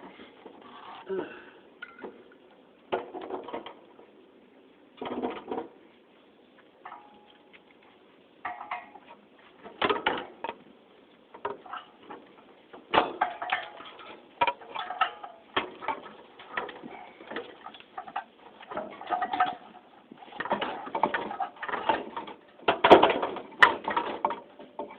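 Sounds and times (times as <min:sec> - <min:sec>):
metal parts and tools clinking: 0:08.4 - 0:10.6, 0:12.9 - 0:24.9.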